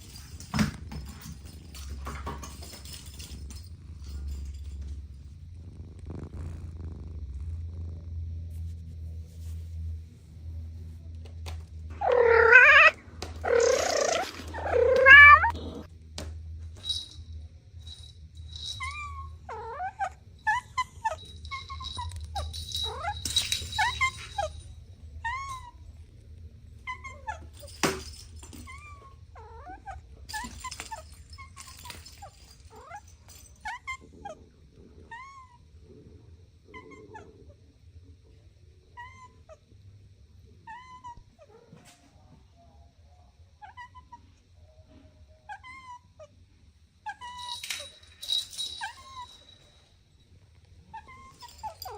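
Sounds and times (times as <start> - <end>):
cat meowing: 12.0 - 15.9.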